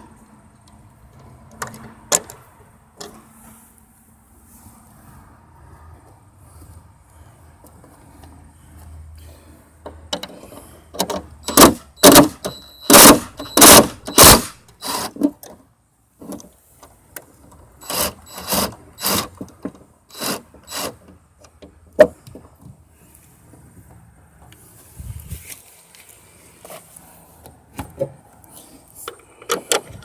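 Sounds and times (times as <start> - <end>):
ratchet wrench rasping: 11.5 - 15.2, 17.8 - 19.4, 20.1 - 21.0.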